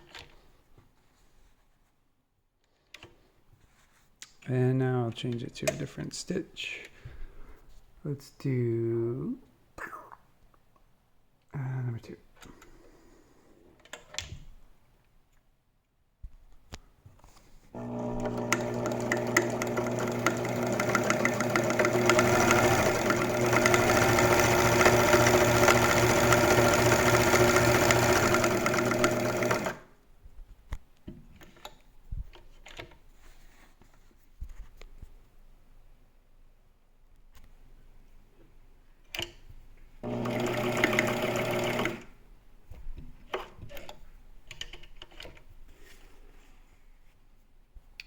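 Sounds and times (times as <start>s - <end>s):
sewing machine running: 17.8s - 29.9s, 40.0s - 42.1s.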